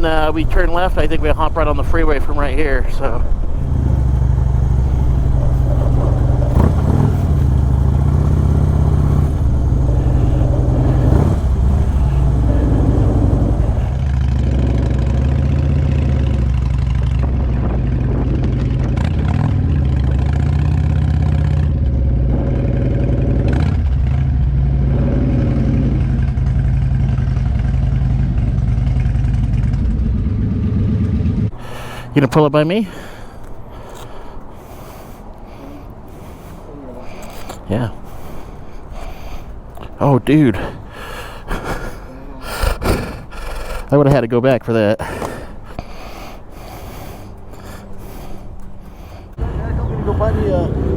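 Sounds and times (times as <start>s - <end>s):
motorcycle engine running: 0.0s - 34.5s, 46.8s - 50.9s.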